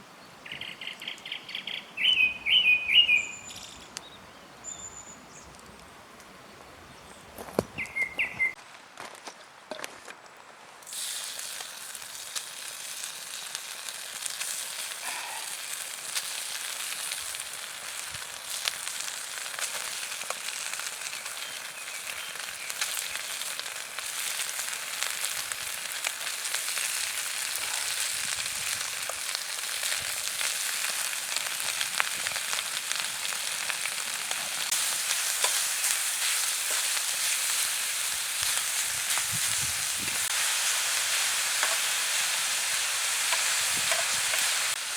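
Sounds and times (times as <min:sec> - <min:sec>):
food sizzling on a griddle: 0:10.9 - 0:44.9.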